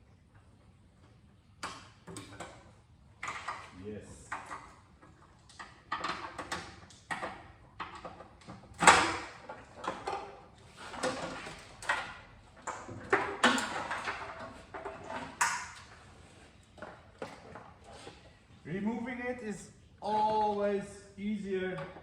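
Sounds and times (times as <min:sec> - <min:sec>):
wiring rustling scrapes and clicks: 0:07.8 - 0:18.4.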